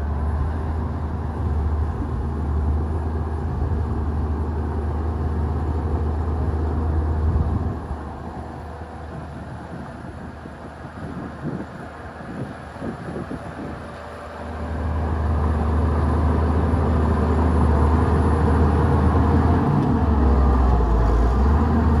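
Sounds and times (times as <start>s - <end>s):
bulldozer diesel engine drone: 0.0s - 22.0s.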